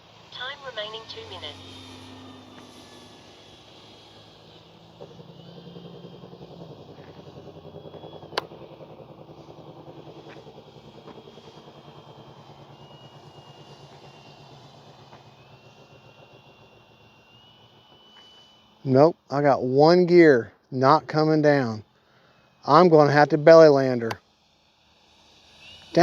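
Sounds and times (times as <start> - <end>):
model plane propeller droning: 0.0 - 26.0
thin motor whine: 0.0 - 26.0
sharp click: 8.3 - 8.5.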